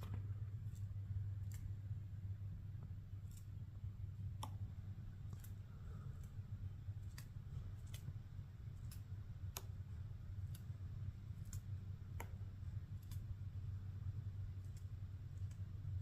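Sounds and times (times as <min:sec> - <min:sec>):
steady low rumble: 0:00.0 - 0:16.0
woodpecker pecking wood: 0:02.7 - 0:13.4.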